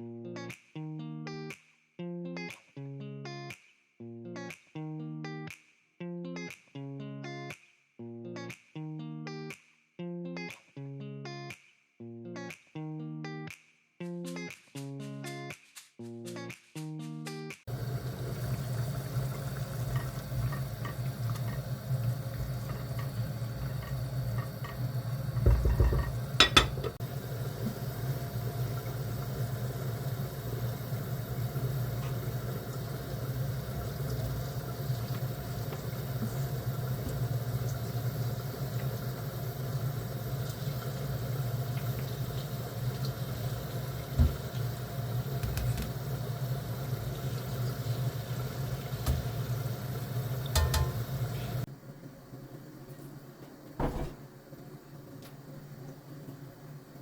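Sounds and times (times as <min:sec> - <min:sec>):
dishes and utensils clinking: 0:25.4 - 0:27.0, 0:50.5 - 0:51.0
dishes clattering: 0:25.4 - 0:27.0.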